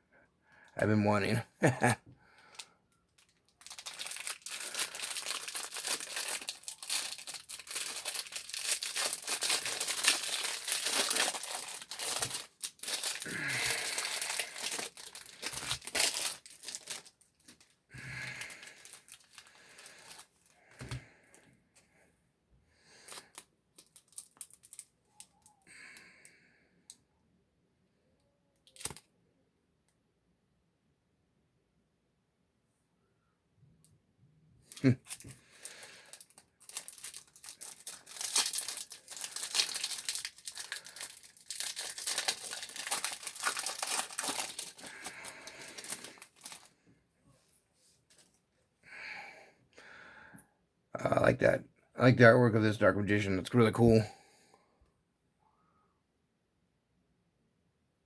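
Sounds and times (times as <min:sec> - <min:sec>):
plastic packaging crinkling: 0:01.1 - 0:21.0, 0:23.0 - 0:25.5, 0:28.7 - 0:29.0, 0:34.7 - 0:46.8.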